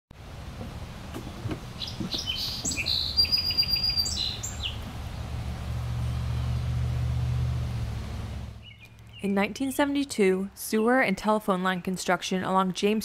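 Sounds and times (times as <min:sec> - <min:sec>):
small birds chirping: 0:01.1 - 0:06.8, 0:08.6 - 0:10.1
low steady rumble: 0:04.0 - 0:09.3.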